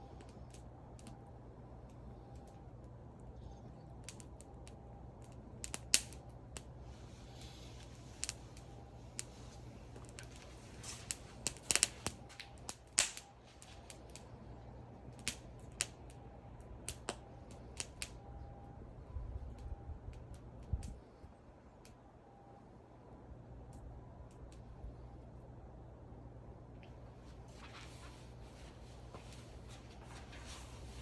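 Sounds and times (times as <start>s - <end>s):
wood fire crackling: 0.0s - 25.5s, 26.6s - 31.0s.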